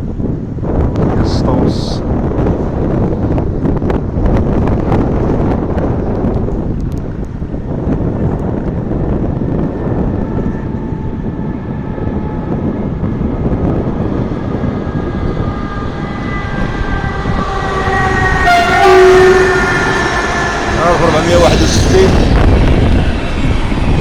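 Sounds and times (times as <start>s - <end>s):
train rumbling: 0.0s - 24.0s
whining tones: 5.6s - 24.0s
locomotive horn: 9.0s - 23.1s.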